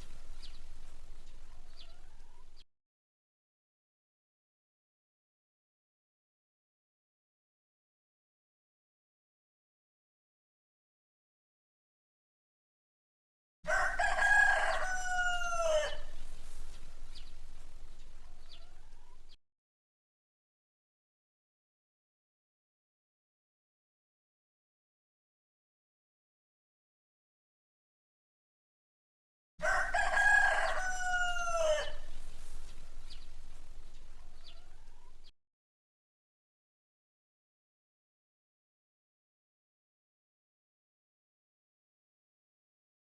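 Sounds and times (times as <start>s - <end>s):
rooster crowing: 13.7s - 19.2s, 29.6s - 35.3s.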